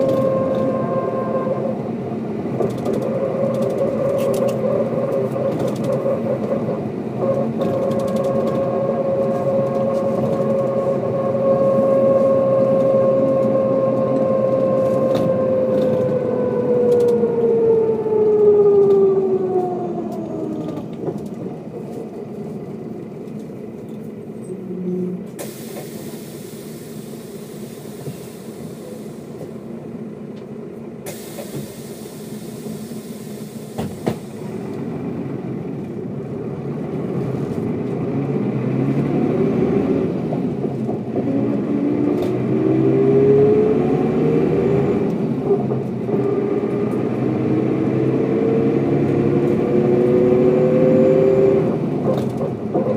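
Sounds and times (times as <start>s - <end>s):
bus diesel engine: 0.0s - 52.9s
air brake hiss: 25.4s - 29.5s, 31.0s - 34.6s.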